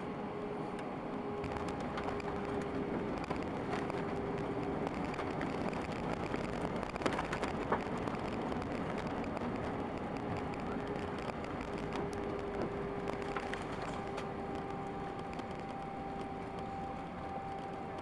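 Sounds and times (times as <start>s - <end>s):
jet engines and airflow rushing: 0.0s - 18.0s.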